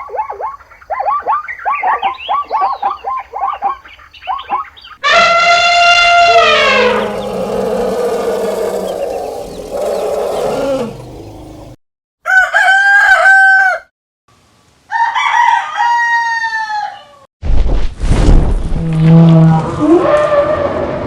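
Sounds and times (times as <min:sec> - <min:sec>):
long animal calls: 0:05.0 - 0:11.8
fainter pitched call: 0:05.1 - 0:11.8.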